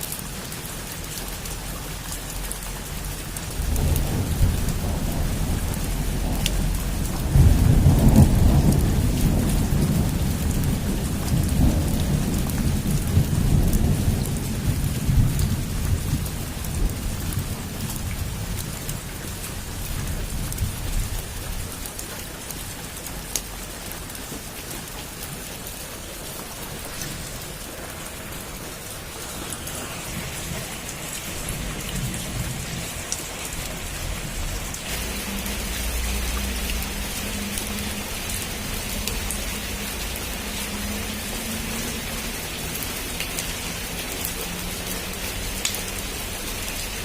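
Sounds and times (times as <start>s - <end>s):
heavy rain on a roof: 0.0s - 47.0s
thunder rolling: 3.5s - 18.6s, 26.4s - 38.9s.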